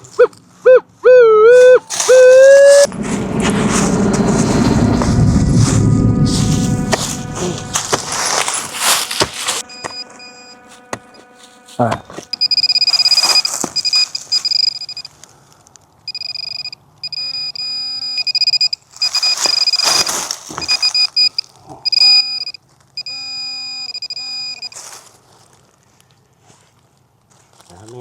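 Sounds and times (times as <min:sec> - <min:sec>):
metal detector beeping: 0:00.7 - 0:15.2, 0:16.1 - 0:24.9
scraping noise bursts: 0:01.9 - 0:14.3.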